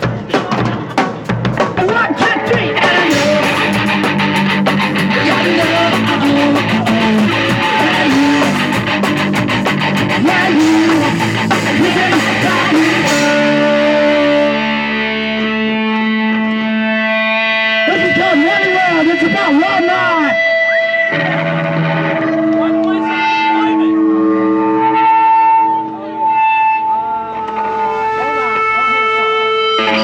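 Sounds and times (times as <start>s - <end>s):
punk rock music: 0.0s - 30.0s
guitar chord ringing: 12.4s - 30.0s.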